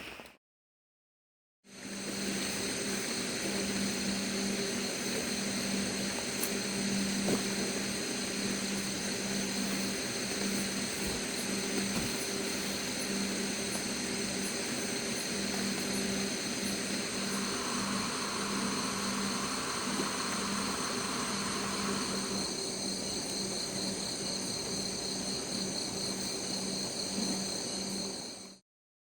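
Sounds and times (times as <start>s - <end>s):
insects chirring: 1.7s - 28.6s
constant rushing noise: 2.1s - 22.6s
low hum: 15.5s - 23.3s.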